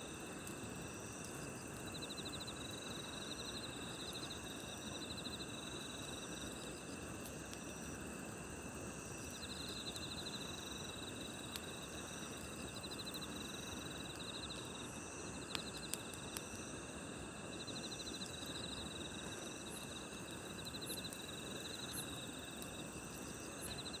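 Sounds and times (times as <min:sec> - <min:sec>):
campfire hissing and crackling: 0:00.0 - 0:24.0
insects chirping: 0:00.0 - 0:24.0.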